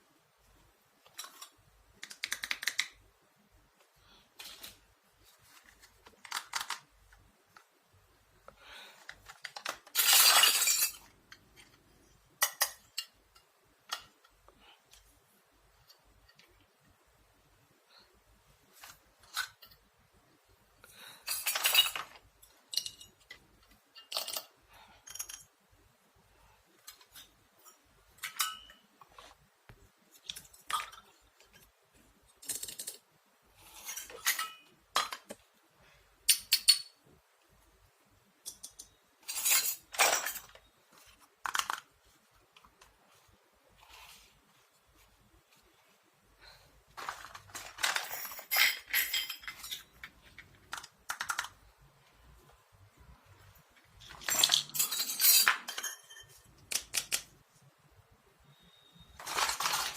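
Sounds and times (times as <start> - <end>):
toy kitchenware clinking: 9.2 - 11.6, 12.4 - 14.2, 21.2 - 25.5, 26.9 - 28.9, 32.4 - 33.0, 33.7 - 35.3, 36.3 - 37.0, 38.4 - 40.7, 47.0 - 51.6, 54.0 - 57.2, 58.9 - 59.9.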